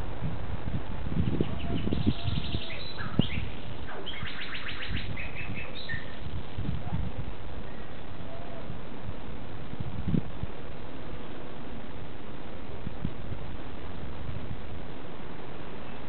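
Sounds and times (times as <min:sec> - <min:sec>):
bird chirps: 0:01.2 - 0:06.2
small birds trilling: 0:01.2 - 0:06.3.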